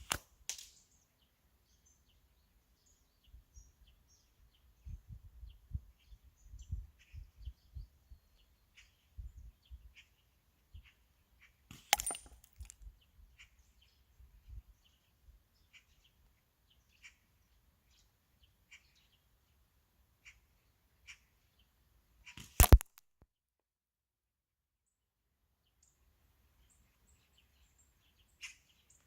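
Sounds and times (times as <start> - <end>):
slingshot crack: 0.0 - 0.8, 11.7 - 12.7, 22.4 - 23.0.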